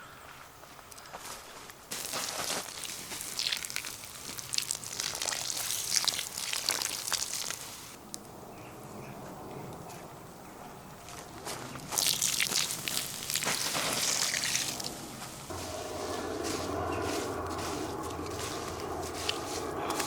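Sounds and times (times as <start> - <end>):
dense rustling and crackling: 1.3 - 8.0, 11.4 - 20.0.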